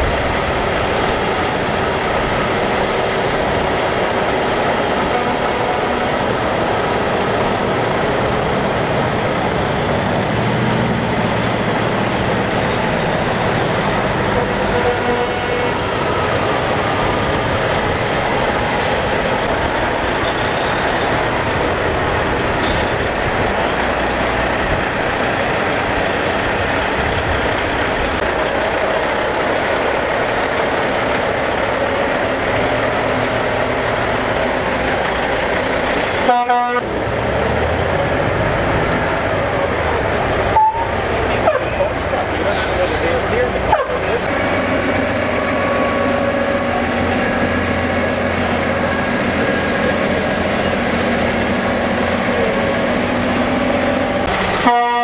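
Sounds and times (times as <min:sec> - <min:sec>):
truck horn: 0:00.0 - 0:21.4, 0:35.8 - 0:36.9, 0:39.9 - 0:52.8, 0:53.4 - 0:55.0
diesel trucks passing: 0:00.0 - 0:55.0.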